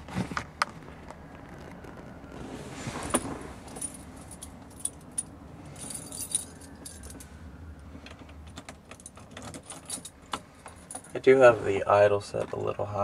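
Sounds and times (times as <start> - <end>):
metallic jingling and ticking: 3.7 - 7.2, 8.5 - 11.2.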